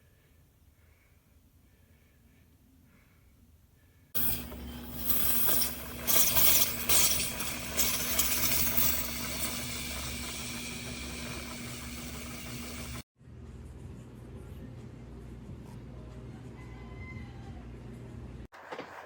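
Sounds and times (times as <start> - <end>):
coffee maker pump hum: 4.2 - 13.0.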